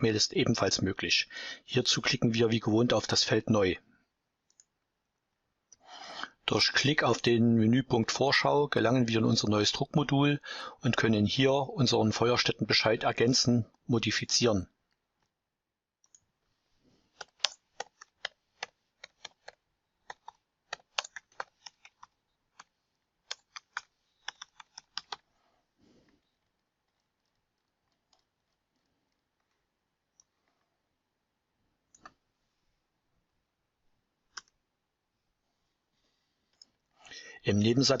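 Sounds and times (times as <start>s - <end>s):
keyboard typing: 17.1s - 25.3s, 26.2s - 30.3s.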